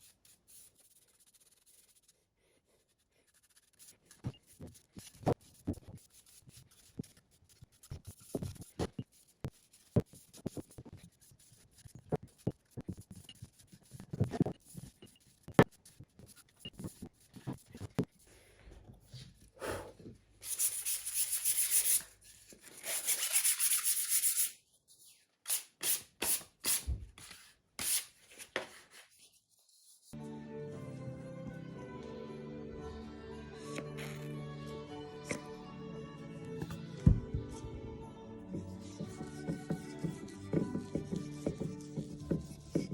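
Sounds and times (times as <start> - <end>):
sandpaper rubbing on wood: 20.4 - 22.1, 22.7 - 24.6
music: 30.2 - 42.9.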